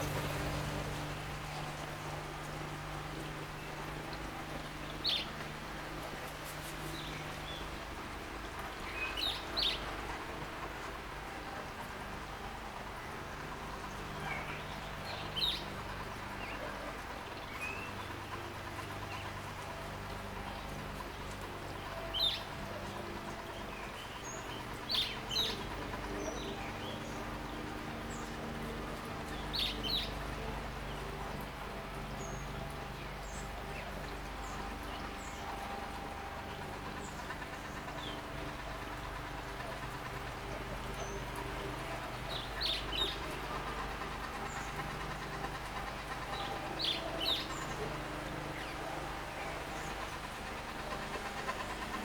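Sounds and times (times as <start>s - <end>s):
fountain water splashing: 0.0s - 52.0s
low background hum: 0.0s - 52.0s
birds chirping: 32.0s - 52.0s.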